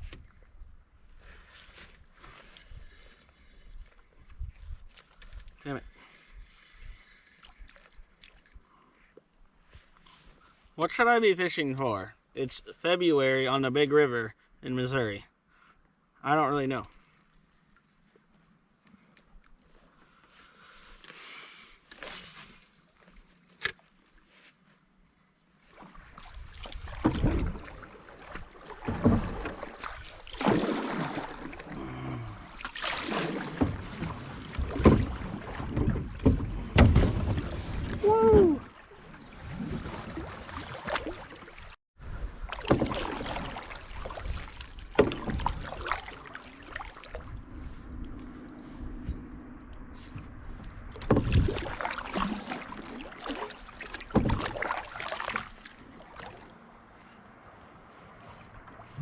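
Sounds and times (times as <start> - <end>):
paddle knocking against canoe hull: 26.7 - 31.4, 33.1 - 38.0, 42.6 - 46.0, 51.0 - 51.9, 52.5 - 55.4.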